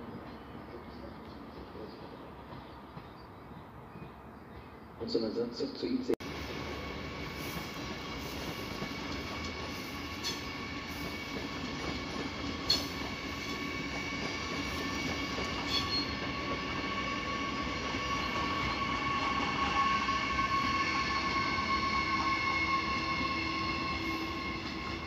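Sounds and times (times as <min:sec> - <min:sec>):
train rumble: 0:06.2 - 0:25.0
train wheels squealing: 0:06.8 - 0:25.0.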